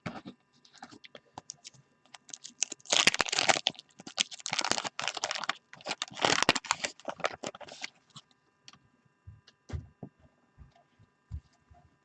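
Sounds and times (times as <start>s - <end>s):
crinkly paper wrapper rustling: 0.7s - 8.2s.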